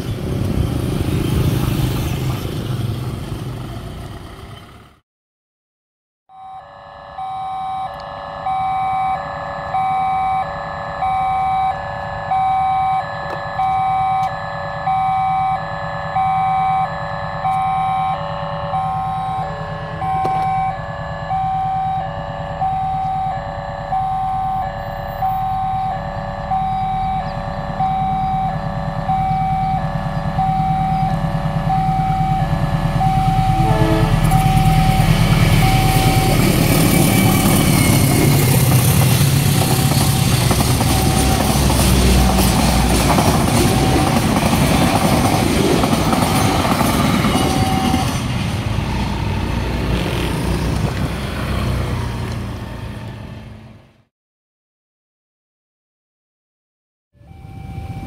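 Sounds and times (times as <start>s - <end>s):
diesel engine drone: 0.0s - 5.0s, 6.3s - 54.1s, 57.2s - 58.0s
level crossing alarm beeping: 6.3s - 49.9s, 57.2s - 58.0s
train wheels rushing on rails: 29.8s - 53.2s.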